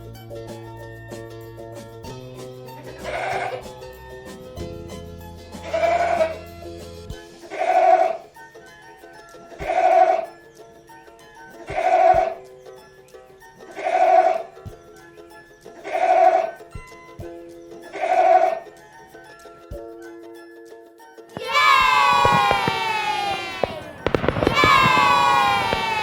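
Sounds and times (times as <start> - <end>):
background music: 0.0 - 26.0
goat bleating: 2.9 - 3.7, 5.6 - 6.4.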